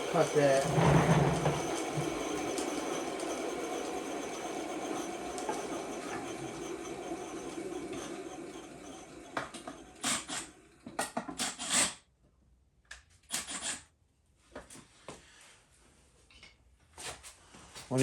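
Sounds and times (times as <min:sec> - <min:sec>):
bandsaw running: 0:00.0 - 0:10.8
sharp clatters and knocks: 0:00.1 - 0:11.5.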